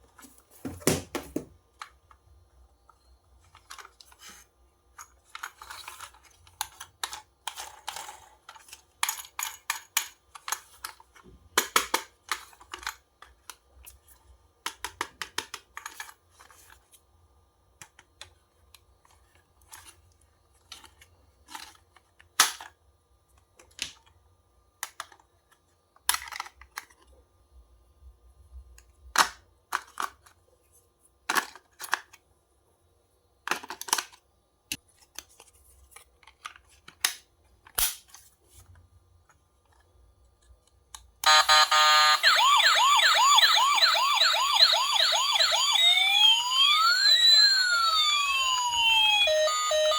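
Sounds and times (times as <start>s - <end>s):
toy packaging being opened: 5.0s - 14.0s, 41.3s - 49.9s.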